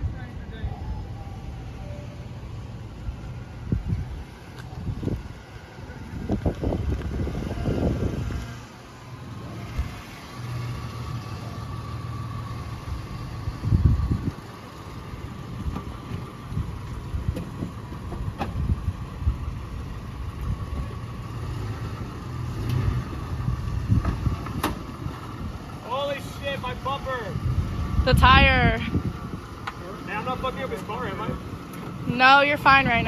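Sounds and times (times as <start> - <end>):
truck engine humming: 0.0 - 33.0
wind noise on microphone: 3.1 - 8.6, 12.8 - 14.5, 15.4 - 21.7, 22.6 - 25.7, 27.3 - 29.6, 31.2 - 33.0.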